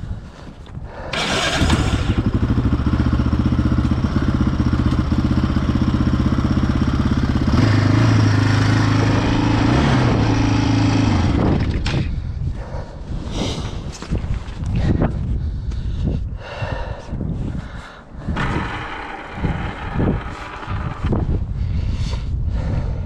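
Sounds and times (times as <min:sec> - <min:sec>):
quad engine running: 0:01.1 - 0:12.0, 0:18.3 - 0:21.5.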